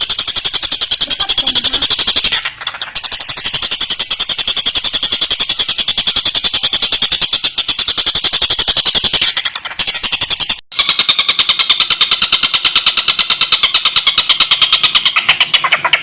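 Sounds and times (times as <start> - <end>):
kingfisher rattling chatter: 0.0 - 10.6.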